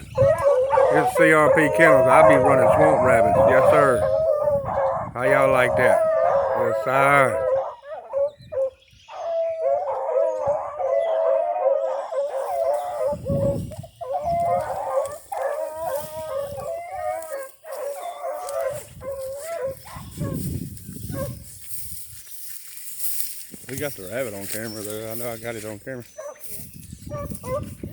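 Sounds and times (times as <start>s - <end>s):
hounds baying: 0.0s - 27.9s.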